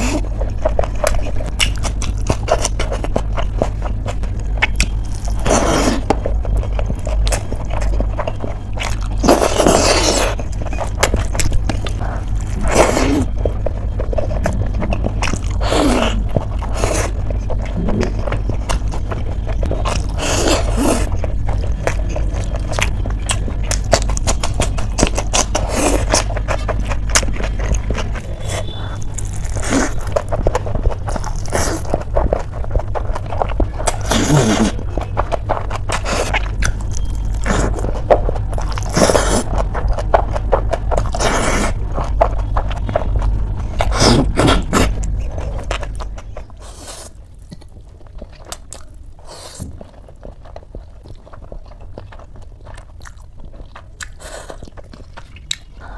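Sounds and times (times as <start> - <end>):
steady low hum: 0.0 - 55.9
wet chewing and lip smacking: 0.0 - 55.9.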